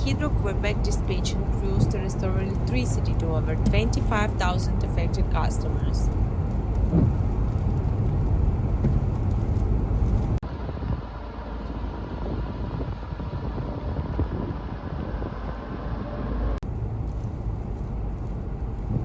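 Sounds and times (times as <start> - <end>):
vehicle rumble: 0.0 - 19.0
wind on microphone: 0.0 - 19.0.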